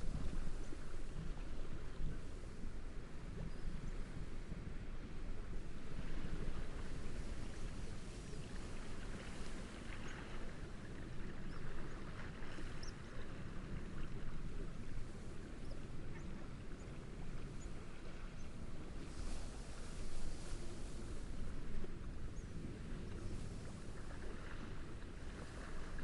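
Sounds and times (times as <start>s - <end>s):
wind through reeds: 0.0s - 16.6s, 17.3s - 26.0s
waves lapping: 5.1s - 26.0s.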